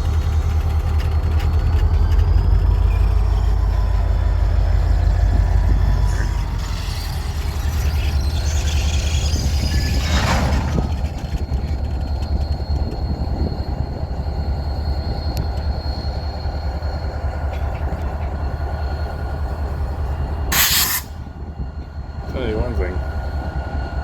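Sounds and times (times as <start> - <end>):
faint high squeal: 0.0 - 24.0
freight train rumbling: 0.0 - 24.0
brief rushing noise: 9.8 - 11.4.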